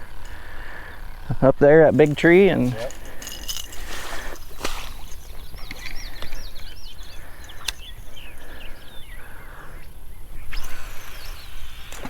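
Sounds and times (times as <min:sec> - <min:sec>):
songbird singing: 0:00.0 - 0:12.0
sharp clicks: 0:07.4 - 0:08.0.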